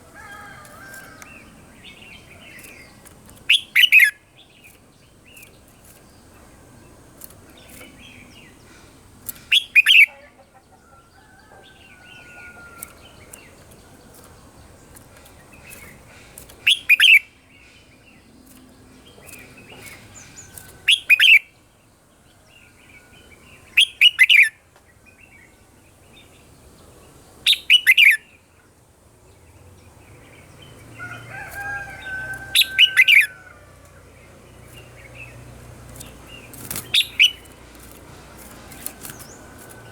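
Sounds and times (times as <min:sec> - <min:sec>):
bird singing sweeping phrases: 0:00.0 - 0:06.4, 0:07.2 - 0:10.2, 0:11.7 - 0:21.6, 0:23.5 - 0:24.6, 0:27.4 - 0:28.5, 0:29.4 - 0:39.9
soft bird chirps: 0:34.2 - 0:39.9.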